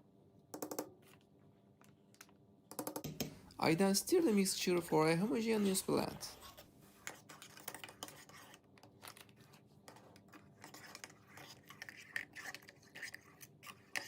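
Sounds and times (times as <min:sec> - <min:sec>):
spoon scraping metal pot: 0:05.4 - 0:14.0.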